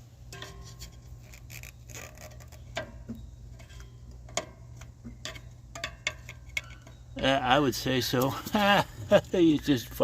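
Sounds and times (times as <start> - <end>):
light clicks and taps on metal: 2.7 - 7.0.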